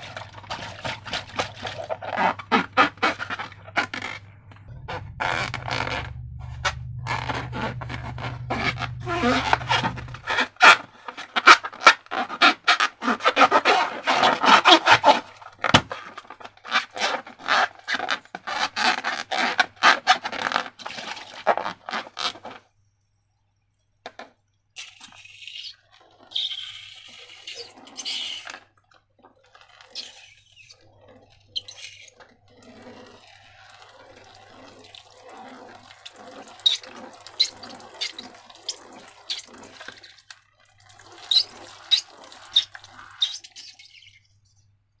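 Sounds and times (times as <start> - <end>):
slime squelching by hand: 0.0 - 22.5, 24.8 - 44.6.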